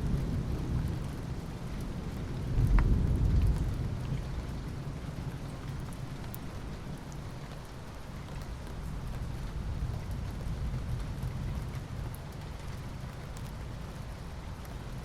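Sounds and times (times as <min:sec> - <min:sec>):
low roll of thunder: 0:00.0 - 0:06.0, 0:08.9 - 0:13.9
steady rainfall: 0:00.0 - 0:15.0.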